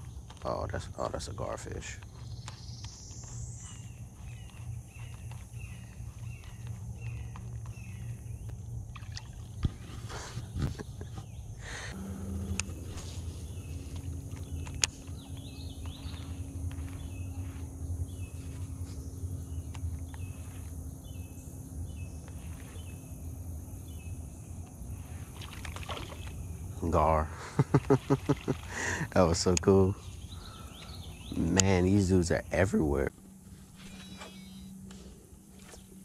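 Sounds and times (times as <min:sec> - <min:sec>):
steady low rumble: 0:00.0 - 0:25.4
bird chirping: 0:00.0 - 0:35.0
low steady tone: 0:11.9 - 0:24.7.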